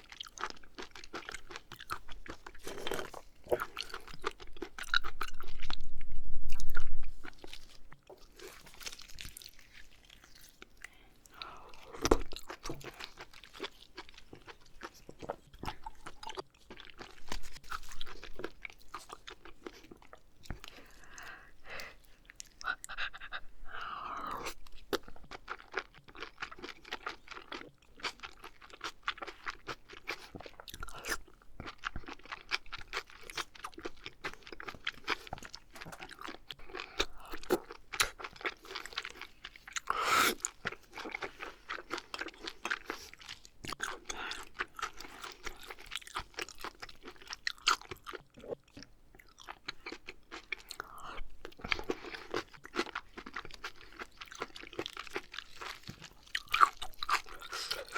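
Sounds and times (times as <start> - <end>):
wet chewing mouth clicks: 0.4 - 9.5, 19.7 - 27.0.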